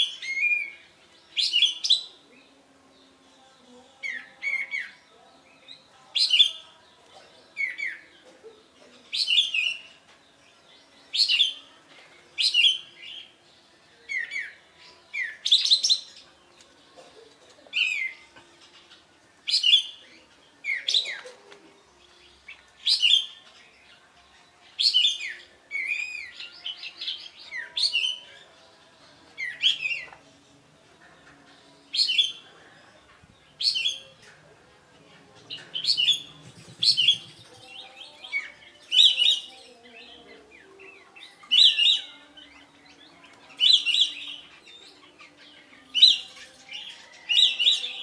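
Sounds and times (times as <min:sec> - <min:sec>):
songbird singing whistled phrases: 0:00.0 - 0:02.5, 0:12.4 - 0:13.3, 0:14.1 - 0:16.3, 0:22.4 - 0:23.4, 0:24.7 - 0:28.4, 0:35.6 - 0:40.1, 0:40.8 - 0:48.0.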